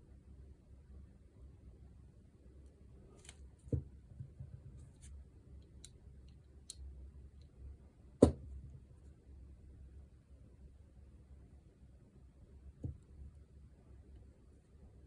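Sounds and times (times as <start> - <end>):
clicks and taps of small parts: 5.6 - 7.6.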